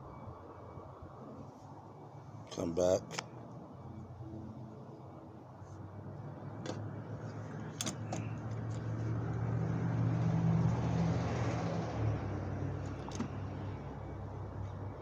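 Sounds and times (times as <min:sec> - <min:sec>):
vehicle passing by: 0:06.8 - 0:15.0.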